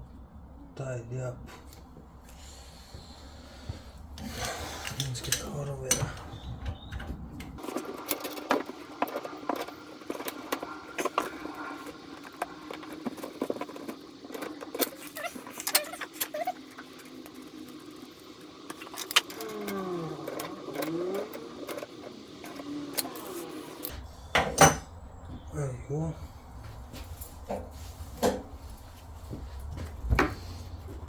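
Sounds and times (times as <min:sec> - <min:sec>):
tools clicking and clinking: 0:04.4 - 0:23.9
short squeaks: 0:14.8 - 0:17.1.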